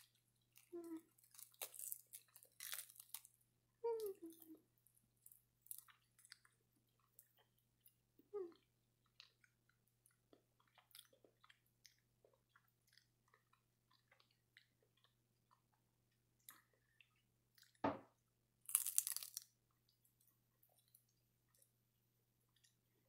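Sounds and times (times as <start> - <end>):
loud crunch of seaweed: 1.3 - 3.3, 18.7 - 19.5
soft chewing clicks: 5.3 - 17.8
thump: 17.8 - 18.1.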